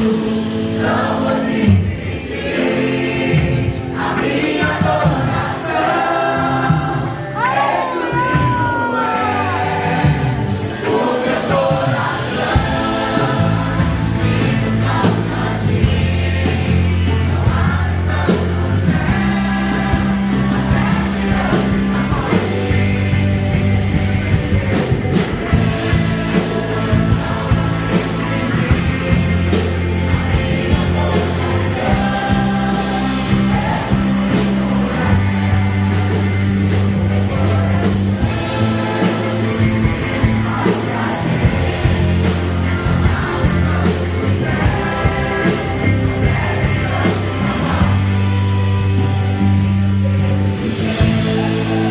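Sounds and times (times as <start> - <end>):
band accompaniment: 0.0 - 51.9
group singing worship song: 0.0 - 51.9.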